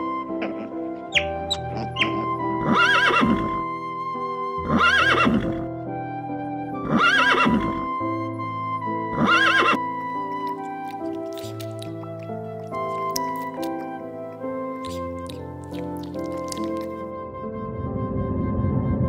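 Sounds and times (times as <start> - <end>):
background music: 0.0 - 19.0
horse whinnying: 1.1 - 3.7, 4.6 - 5.6, 6.8 - 7.9, 9.1 - 9.8.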